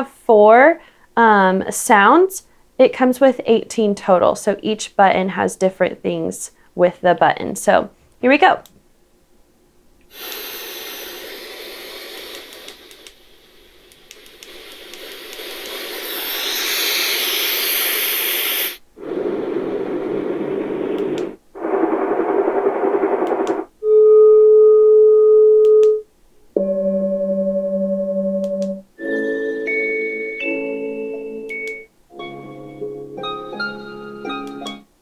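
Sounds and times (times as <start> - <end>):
steady hum: 9.3 - 24.6
sound machine hiss: 10.1 - 23.7
deep dull noise: 18.8 - 23.8
low pulsing tone: 26.6 - 28.9.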